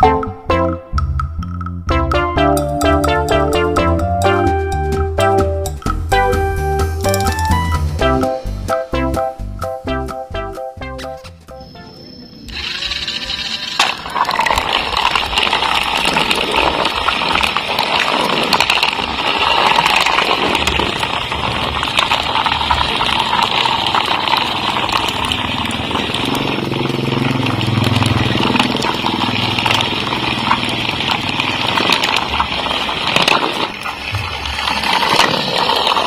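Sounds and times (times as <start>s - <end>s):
crackling rattle: 12.4s - 36.0s
small motor buzzing whir: 12.5s - 14.0s.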